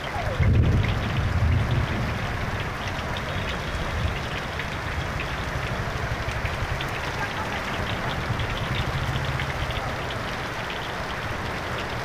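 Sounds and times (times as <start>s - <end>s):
heavy rain on flooded road: 0.0s - 12.0s
low rumble: 0.1s - 6.8s.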